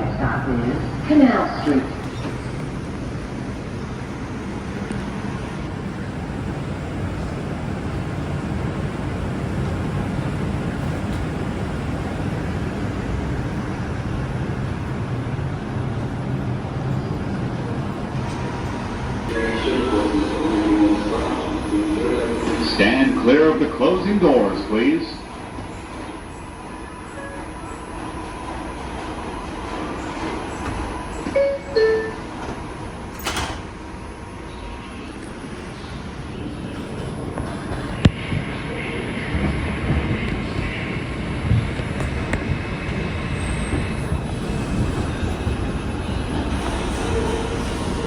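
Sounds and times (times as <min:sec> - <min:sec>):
subway train hum: 0:00.0 - 0:48.0
sliding doors shutting: 0:29.8 - 0:33.8.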